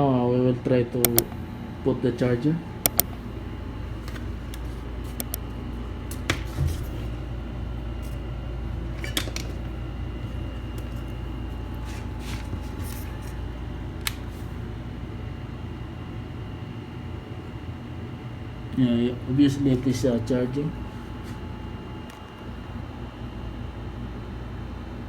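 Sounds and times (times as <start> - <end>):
low background hum: 0.0 - 25.0
sharp clicks and light taps: 1.0 - 1.4, 2.8 - 3.2, 5.2 - 5.4.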